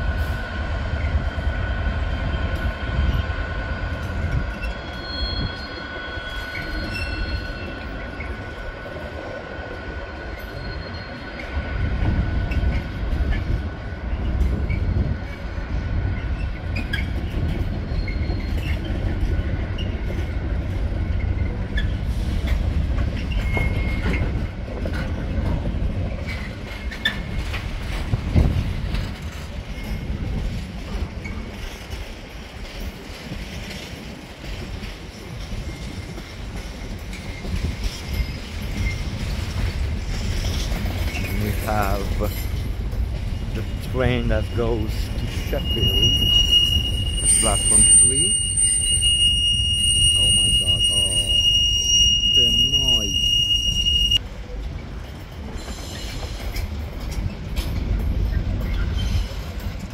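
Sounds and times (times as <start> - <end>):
train wheels rumbling on rail: 0.0 - 59.9
high wheel squeal: 4.2 - 13.6, 16.2 - 20.0, 23.2 - 24.4, 43.6 - 54.2.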